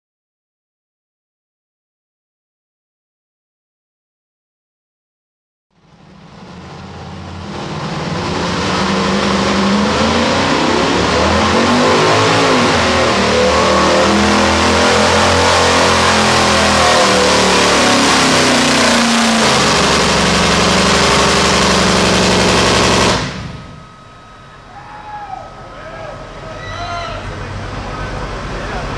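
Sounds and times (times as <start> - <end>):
truck engine at high revs: 5.8 - 24.7.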